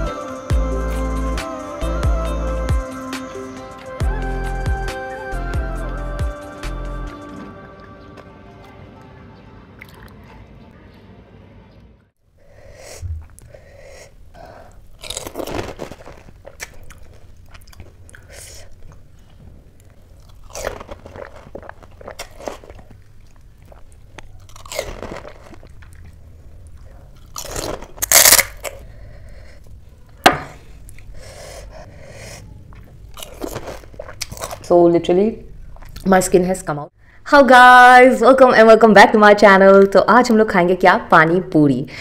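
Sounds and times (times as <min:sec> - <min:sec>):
wet chewing: 0:14.8 - 0:29.8, 0:32.3 - 0:34.7
fried shells crunching: 0:14.9 - 0:19.1, 0:19.8 - 0:28.9, 0:32.7 - 0:34.7.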